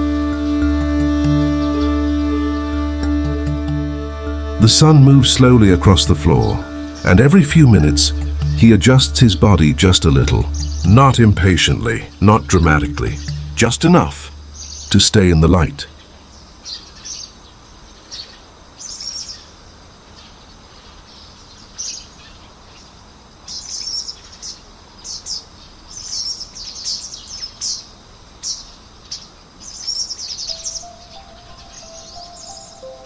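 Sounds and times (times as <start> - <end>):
soft music notes: 0.0 - 15.8, 30.5 - 33.0
small birds chirping: 4.8 - 33.0.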